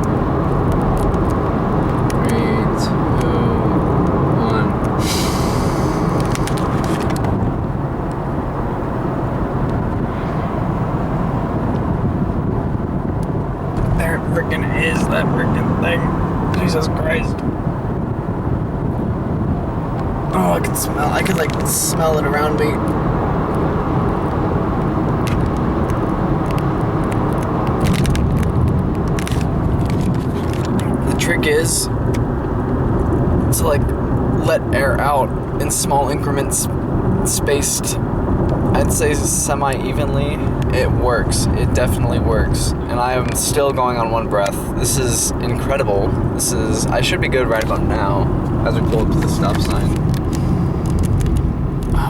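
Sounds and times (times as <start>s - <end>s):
car road and engine noise: 0.0s - 52.0s.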